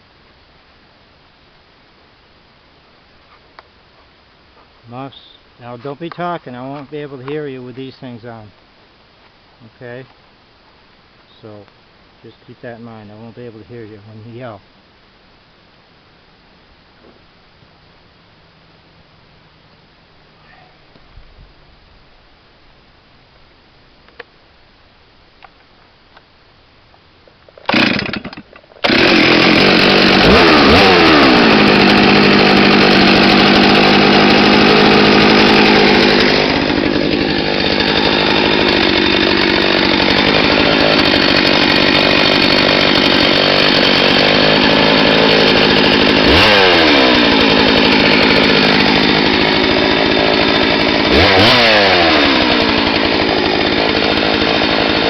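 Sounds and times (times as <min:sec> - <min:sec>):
chainsaw engine revving: 0:27.6 - 0:55.0.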